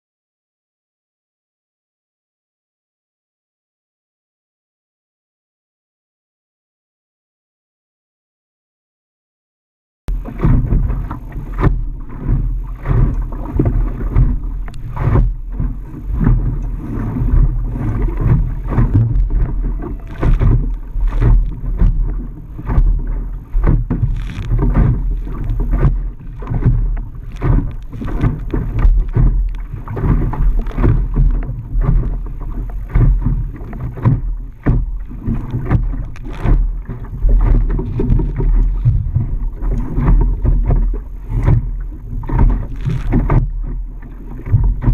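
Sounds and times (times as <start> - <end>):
sharp water slaps: 10.1 - 32.2
water splashing against boat: 10.1 - 44.9
wind buffeting microphone: 10.1 - 44.9.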